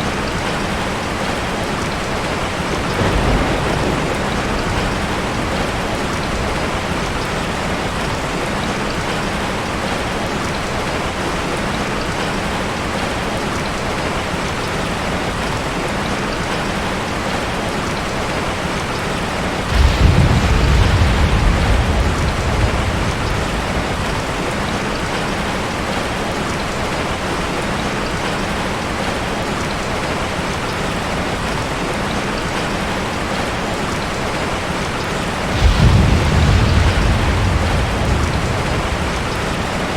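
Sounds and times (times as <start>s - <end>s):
heavy rain falling: 0.0s - 39.9s
thunder rolling: 2.0s - 8.7s, 19.2s - 26.4s, 35.2s - 39.9s.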